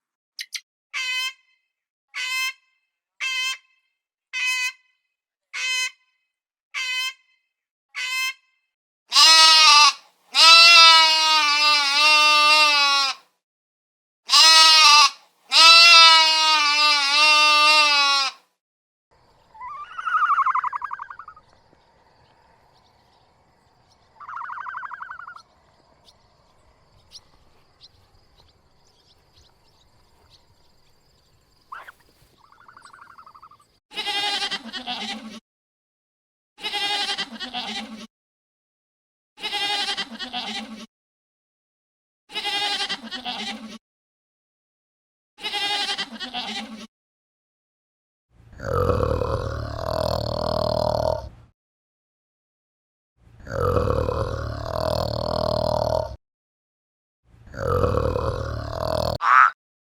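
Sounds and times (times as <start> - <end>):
livestock bleating: 9.1 - 13.2, 14.3 - 18.4, 33.9 - 35.4, 36.6 - 38.1, 39.4 - 40.9, 42.3 - 43.8, 45.4 - 46.9, 48.6 - 51.2, 53.5 - 56.0, 57.5 - 59.5.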